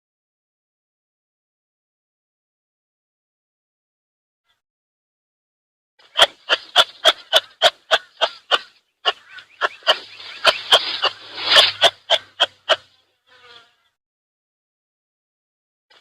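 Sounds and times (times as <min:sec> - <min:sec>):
animal giving sharp calls: 0:06.0 - 0:12.9.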